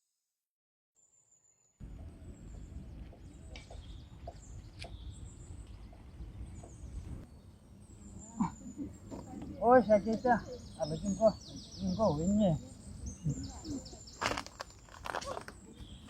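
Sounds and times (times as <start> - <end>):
steady low rumble: 1.8 - 9.1
birds chirping: 1.8 - 16.0.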